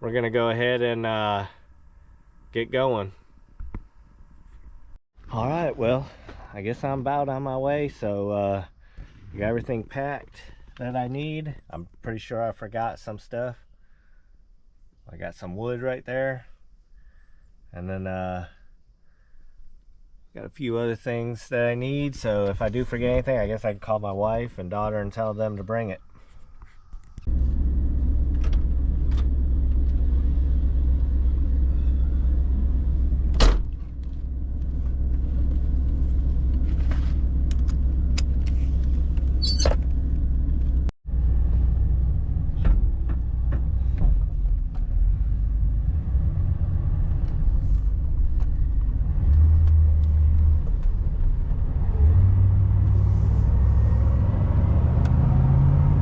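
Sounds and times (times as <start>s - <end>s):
van driving rumble inside cabin: 27.3s - 56.0s.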